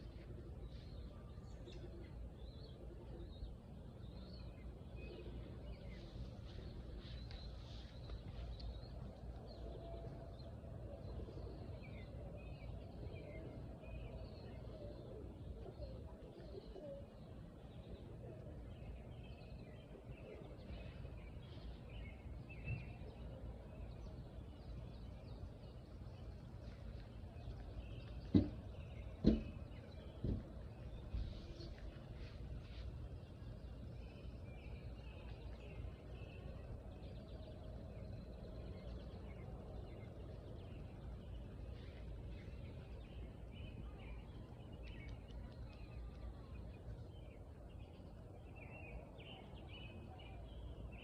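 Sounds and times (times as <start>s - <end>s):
low background hum: 0.0s - 51.0s
sharp knocks: 28.3s - 28.6s, 29.2s - 29.6s.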